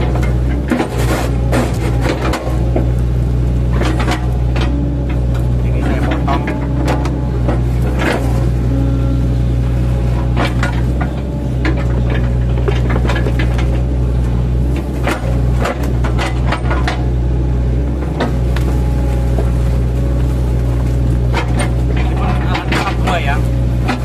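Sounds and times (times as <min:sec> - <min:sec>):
diesel engine running under load: 0:00.0 - 0:24.0
wood cracking and knocking: 0:10.2 - 0:17.2, 0:20.6 - 0:24.0.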